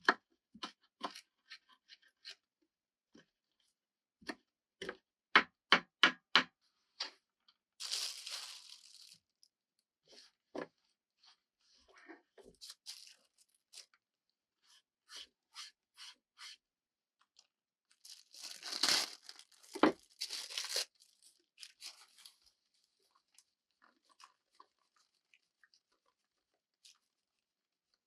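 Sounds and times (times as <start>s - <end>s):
crunching: 18.0s - 20.9s.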